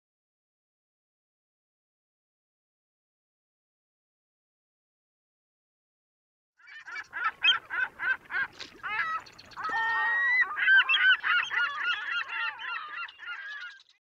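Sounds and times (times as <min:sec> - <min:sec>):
flock of birds honking: 0:06.6 - 0:13.9.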